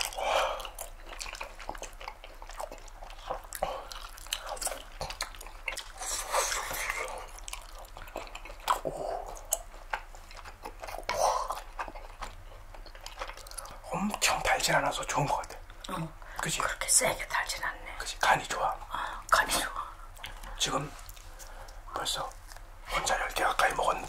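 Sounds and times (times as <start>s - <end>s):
mouths chewing soft food: 0.0s - 24.0s.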